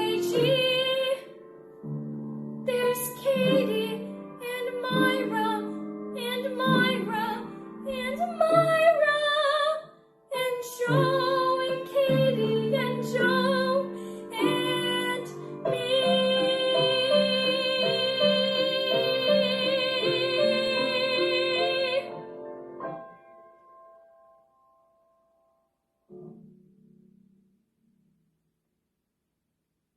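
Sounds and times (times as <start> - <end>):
woman singing with vibrato: 0.0 - 1.3, 2.7 - 22.2
piano accompaniment: 0.0 - 25.3.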